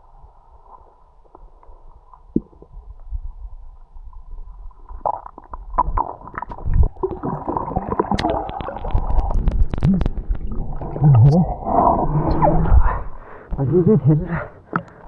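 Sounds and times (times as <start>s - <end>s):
water gurgling and bubbling: 4.9s - 14.6s
low rumble: 8.9s - 14.0s.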